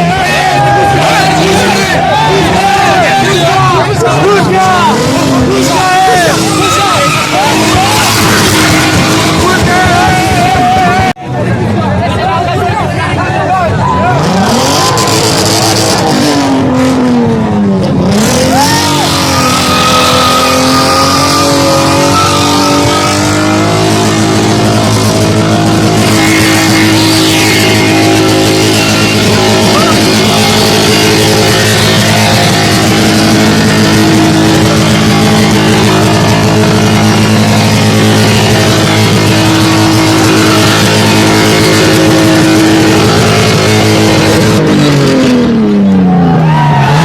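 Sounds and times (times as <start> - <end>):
car engine revving: 0.0 - 12.2, 14.0 - 47.0.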